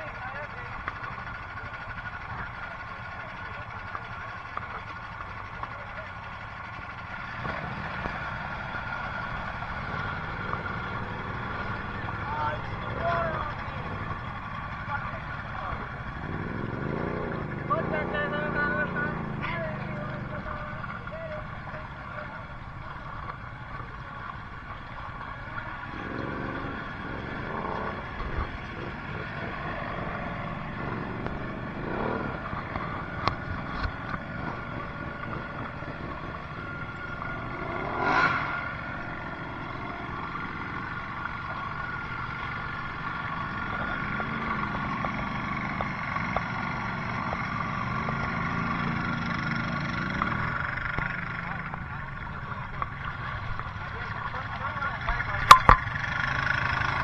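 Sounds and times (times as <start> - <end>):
four-wheeler engines revving: 0.0 - 57.0
knocks and clatters: 55.0 - 56.1.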